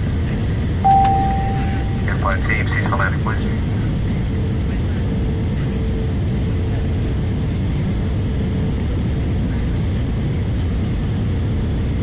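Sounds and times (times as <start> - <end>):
airplane cabin rumble: 0.0 - 12.0
faint steady hum: 0.8 - 3.0.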